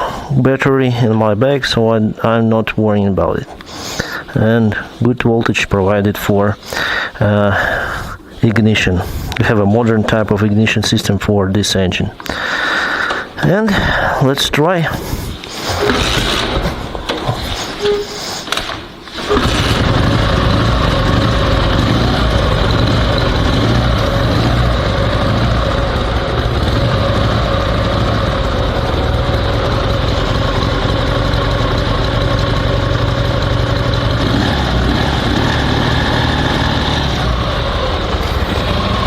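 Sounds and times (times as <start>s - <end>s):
motorcycle engine kick-started: 15.8s - 17.2s, 18.6s - 39.0s
motorcycle engine idling: 19.4s - 39.0s.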